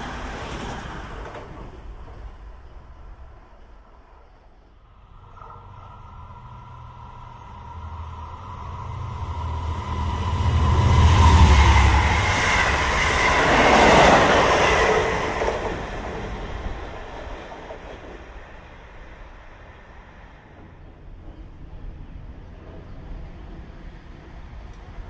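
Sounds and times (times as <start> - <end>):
train passing with deep rumble: 0.0 - 25.0.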